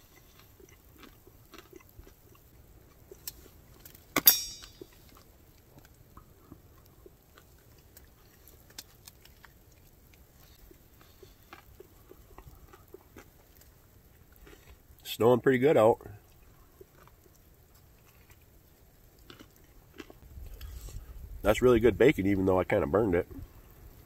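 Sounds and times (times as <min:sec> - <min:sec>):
person chewing: 0:00.0 - 0:15.0, 0:16.2 - 0:21.2
sharp clink: 0:04.2 - 0:05.0.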